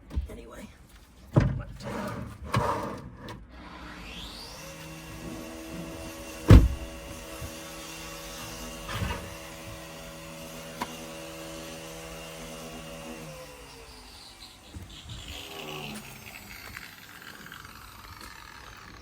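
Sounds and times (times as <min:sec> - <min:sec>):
small electric motor whining: 0:03.5 - 0:19.0
loud knock: 0:06.5 - 0:06.9.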